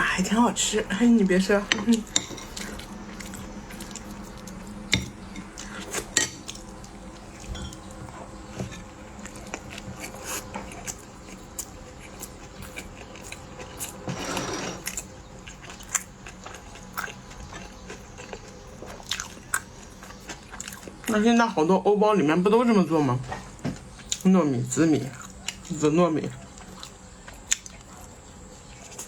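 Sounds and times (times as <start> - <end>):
faint steady hum: 0.0 - 29.0
cutlery and dishes clinking: 1.7 - 2.8, 7.4 - 7.9.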